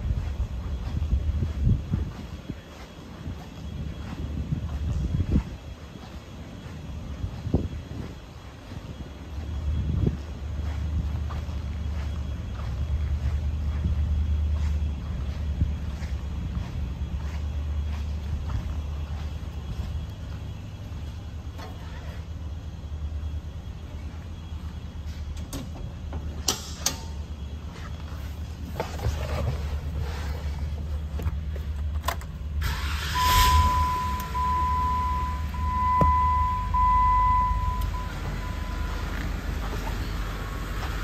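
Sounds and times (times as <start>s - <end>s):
car engine idling: 30.7s - 41.0s
electronic warning chime: 33.1s - 39.2s.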